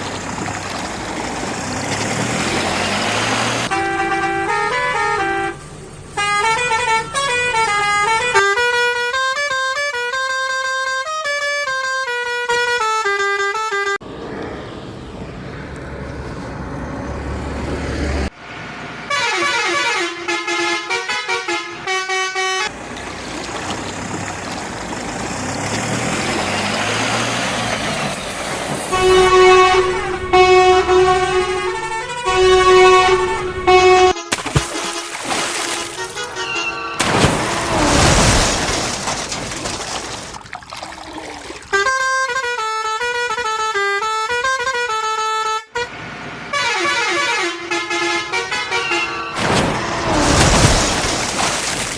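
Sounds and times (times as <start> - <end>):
horn playing stepping notes: 3.2 - 5.6, 6.2 - 14.0, 28.9 - 35.1, 41.7 - 45.9
vehicle horn honks: 3.3 - 14.0, 19.1 - 22.7, 28.9 - 35.0, 35.6 - 38.0, 41.7 - 49.4.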